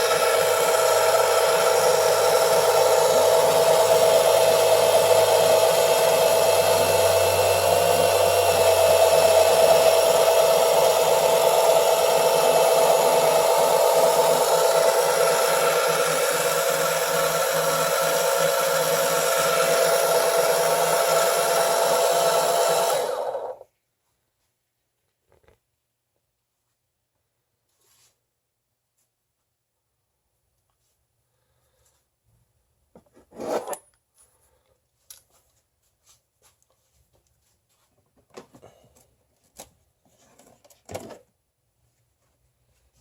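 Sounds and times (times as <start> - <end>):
oil pump motor whining: 0.0 - 23.6.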